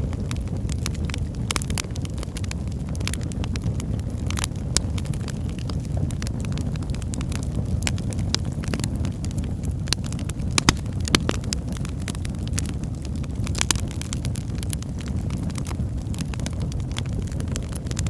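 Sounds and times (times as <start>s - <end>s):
fire crackling: 0.0s - 18.0s
wood fire pops and snaps: 4.2s - 18.0s.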